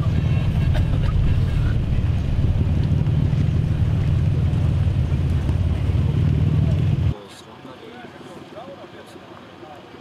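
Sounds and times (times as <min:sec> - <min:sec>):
car engine idling: 0:00.0 - 0:07.1
wind buffeting microphone: 0:00.0 - 0:07.1.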